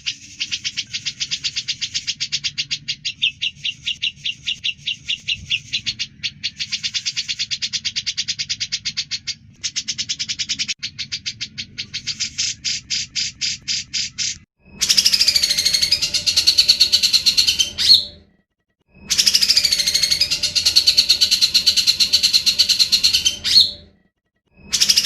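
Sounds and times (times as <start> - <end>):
bird calling rapid repeated notes: 0.0 - 18.2, 18.9 - 23.9, 24.5 - 25.0.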